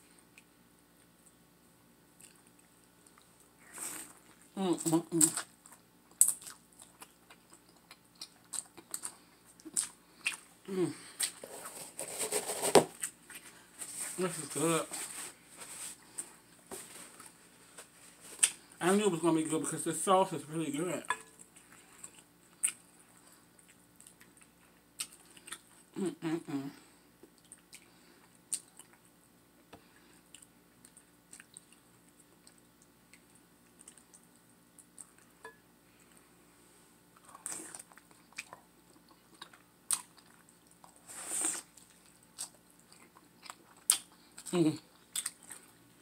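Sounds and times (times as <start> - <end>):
chewing and biting with wet smacks: 4.1 - 10.5, 27.2 - 29.2, 30.2 - 35.3, 41.7 - 45.8.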